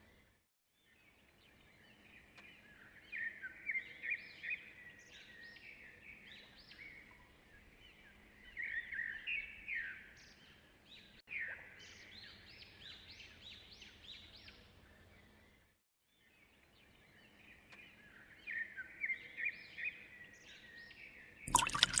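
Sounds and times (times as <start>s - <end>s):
small birds chirping: 16.1s - 22.0s.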